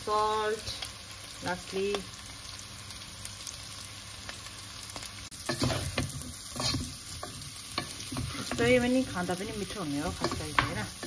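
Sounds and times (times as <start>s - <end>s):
potatoes sizzling in oil: 0.0s - 11.0s
spatula scraping a pan: 5.4s - 11.0s.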